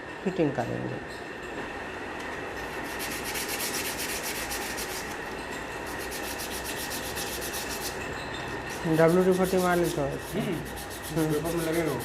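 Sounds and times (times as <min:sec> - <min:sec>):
sandpaper scrubbing metal: 0:02.7 - 0:05.2, 0:05.8 - 0:08.0, 0:08.7 - 0:12.0.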